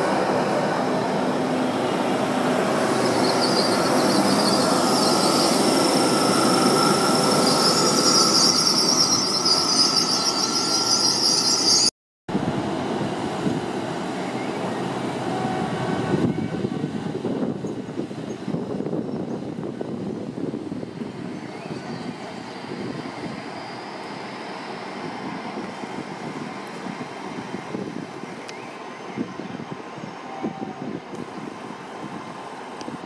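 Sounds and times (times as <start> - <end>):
standing train running noise: 0.0 - 33.0
train running slowly: 0.0 - 33.0
high brake squeal: 2.7 - 11.9, 21.3 - 24.8.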